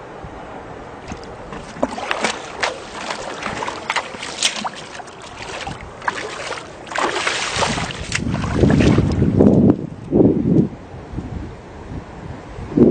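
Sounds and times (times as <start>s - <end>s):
water splashing and sloshing: 1.0s - 9.8s.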